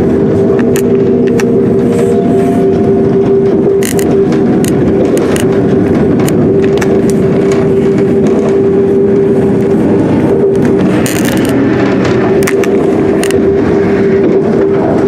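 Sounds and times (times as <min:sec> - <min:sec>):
steady whine: 0:00.0 - 0:15.0
train rumbling: 0:00.0 - 0:15.0
clicks: 0:02.6 - 0:13.4.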